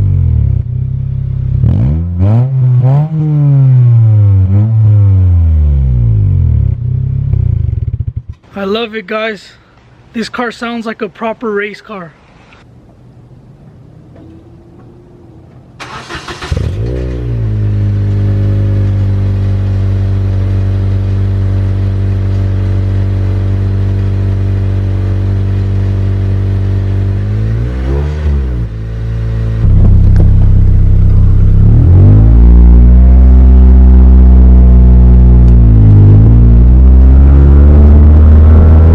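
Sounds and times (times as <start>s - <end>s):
engine revving: 0.0s - 8.4s, 15.8s - 38.9s
car engine starting and idling: 13.2s - 38.9s.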